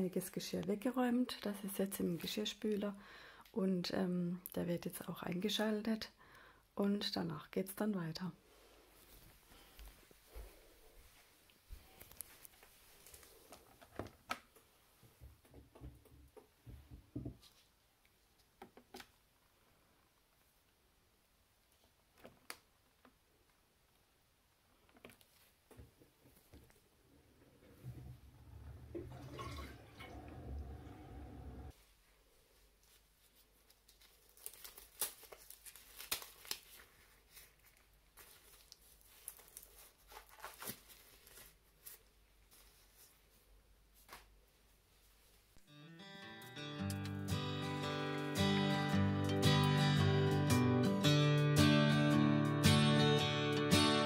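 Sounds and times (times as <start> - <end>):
disposable gloves crinkling: 11.0 - 14.3, 32.5 - 45.5.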